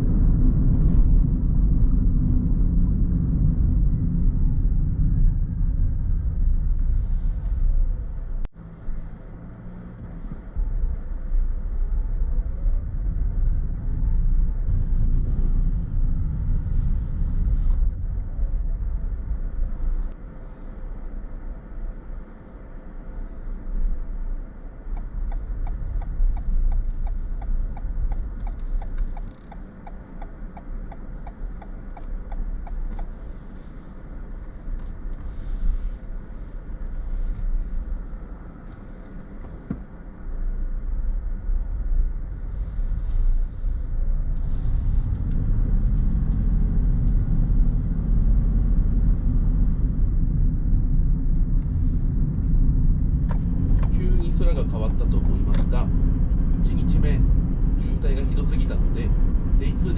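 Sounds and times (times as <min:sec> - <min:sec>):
car engine and road noise: 0:00.0 - 0:59.9
light regular ticking: 0:24.9 - 0:33.1.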